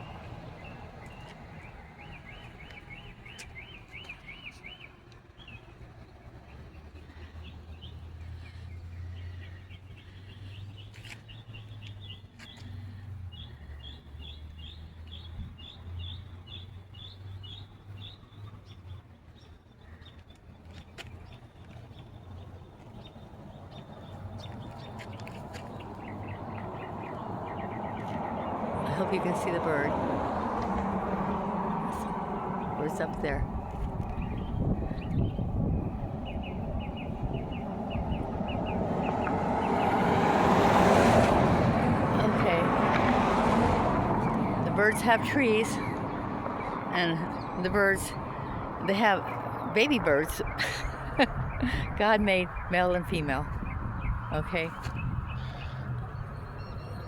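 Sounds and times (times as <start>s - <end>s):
songbird singing whistled notes: 0.0s - 5.6s
bird chirps: 0.0s - 5.7s, 53.6s - 57.0s
small birds chirping: 0.0s - 31.0s, 31.8s - 41.2s, 44.1s - 57.0s
low traffic rumble: 0.0s - 57.0s.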